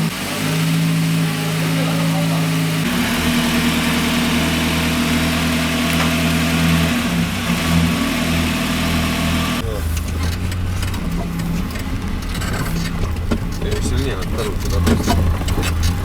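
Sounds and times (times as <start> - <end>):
van engine running: 0.0 - 16.0.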